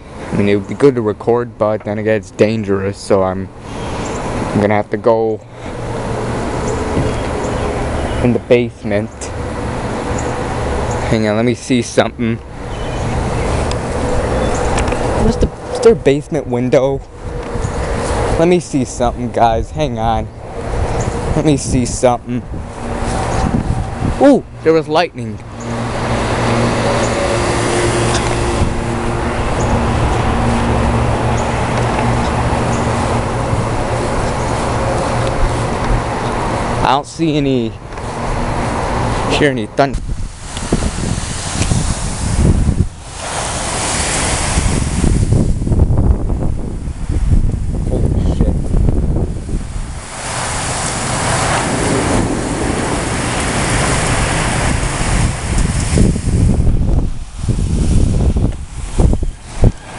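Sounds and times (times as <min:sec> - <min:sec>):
heavy rain and wind: 0:00.0 - 0:59.9
deep rumble: 0:19.1 - 0:36.8.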